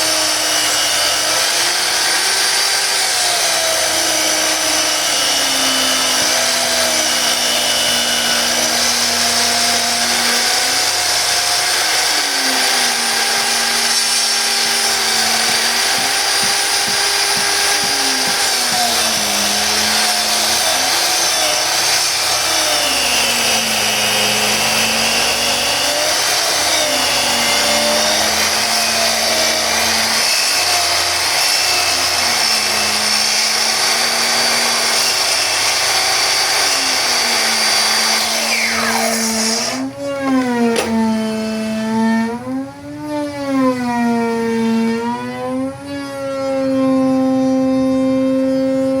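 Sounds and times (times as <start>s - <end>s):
saw cutting wood hiss: 0.0s - 39.9s
miter saw motor hum: 0.0s - 45.4s.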